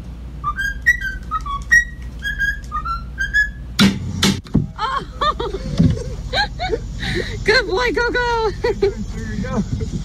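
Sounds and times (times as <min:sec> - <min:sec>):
cockatiel whistling a tune: 0:00.4 - 0:03.6.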